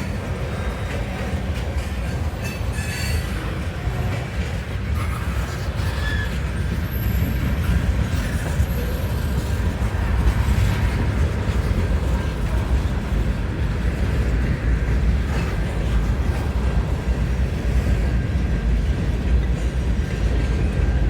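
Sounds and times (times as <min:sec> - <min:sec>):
freight train rumbling on rails: 0:00.0 - 0:21.0.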